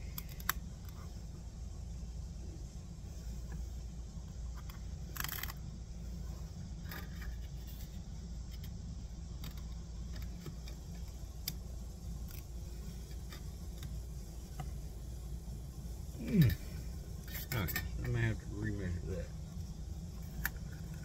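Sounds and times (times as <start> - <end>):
steady low hum: 0.0 - 21.0
metal parts clicking and rattling: 4.6 - 5.6.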